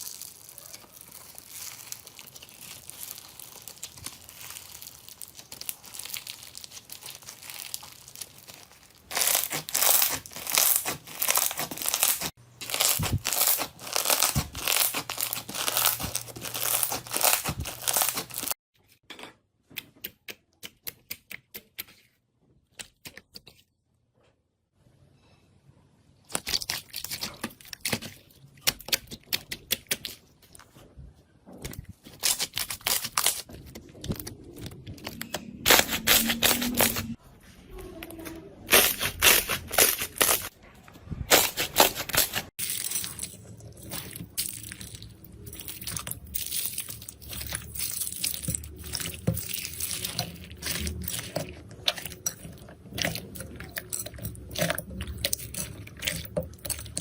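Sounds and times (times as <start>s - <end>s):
slime squelching and popping: 0.0s - 18.6s, 26.2s - 30.6s, 41.3s - 57.0s.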